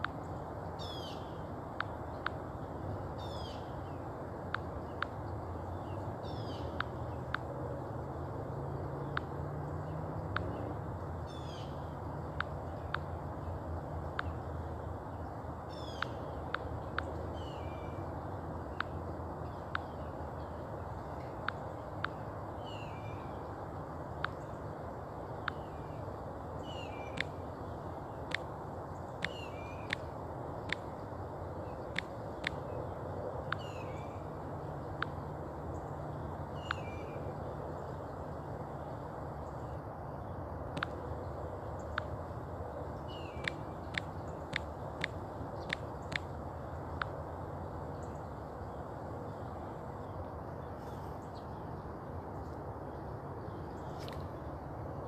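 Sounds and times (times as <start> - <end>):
steady low hum: 0.0 - 55.0
birds calling: 0.2 - 1.4, 3.2 - 4.0, 4.8 - 7.4, 9.1 - 23.6, 24.2 - 34.4, 35.0 - 38.2, 43.0 - 47.1
bird call notes: 15.7 - 18.1, 26.6 - 28.4, 29.0 - 30.9, 33.5 - 34.3, 36.5 - 37.4, 43.0 - 46.3
sharp bird chip notes: 29.2 - 30.1.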